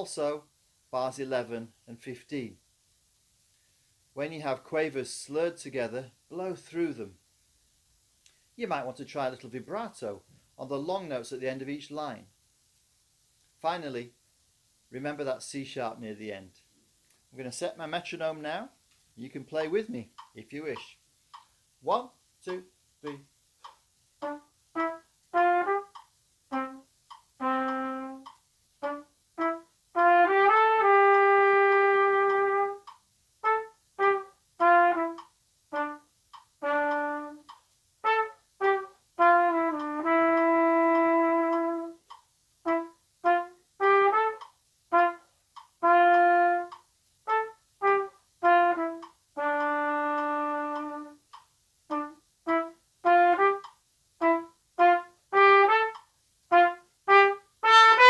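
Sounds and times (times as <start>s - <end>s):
plastic trumpet playing jazz: 24.2s - 58.0s.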